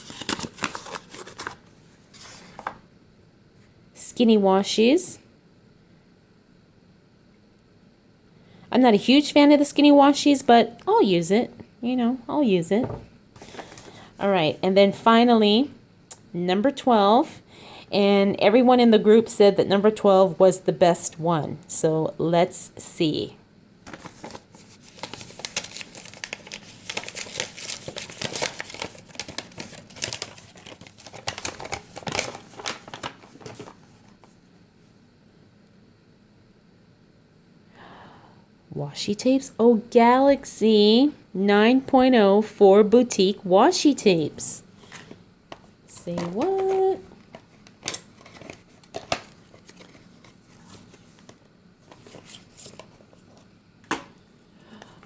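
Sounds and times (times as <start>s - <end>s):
packaging crinkling and tearing: 0.0s - 2.8s, 23.9s - 34.2s, 46.4s - 53.3s.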